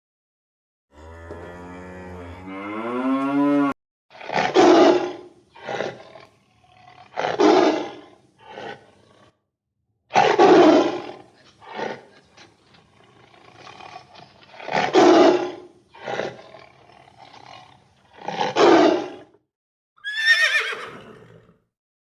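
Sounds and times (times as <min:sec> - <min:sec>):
cow mooing: 0:00.9 - 0:06.1
large animal roaring calls: 0:00.9 - 0:09.4.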